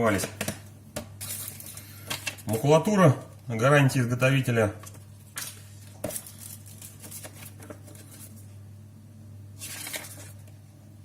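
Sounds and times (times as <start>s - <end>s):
steady low hum: 0.0s - 11.0s
paper rustling: 4.8s - 8.5s, 9.6s - 10.6s.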